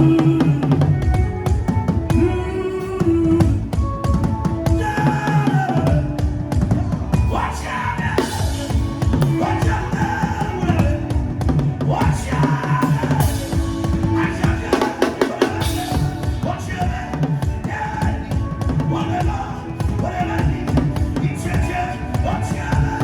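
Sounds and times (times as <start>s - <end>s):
music backing with gliding melody: 0.0s - 23.0s
drum kit fast rhythm: 3.0s - 23.0s.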